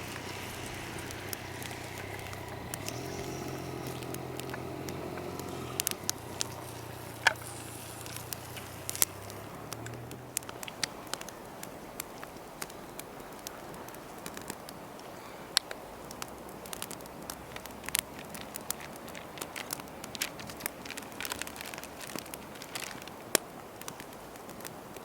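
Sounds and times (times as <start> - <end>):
low engine hum: 0.0 - 11.3
campfire crackling and popping: 0.0 - 25.0.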